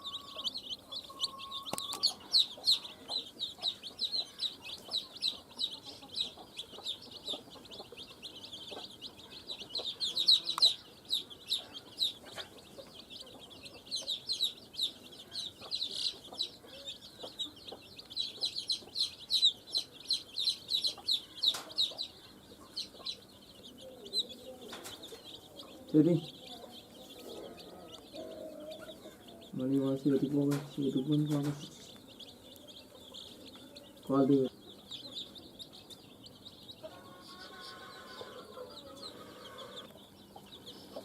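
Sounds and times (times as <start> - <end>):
baby chicks peeping: 0.0 - 41.0.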